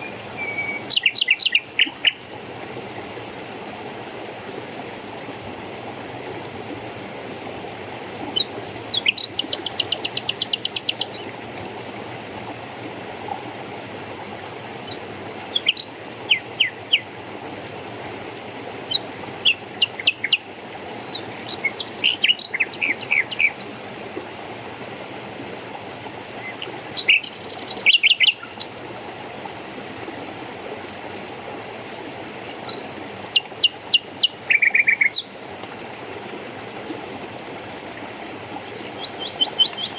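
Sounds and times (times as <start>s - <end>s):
small birds chirping: 0.0s - 2.3s, 38.8s - 39.9s
flowing water: 0.0s - 39.9s.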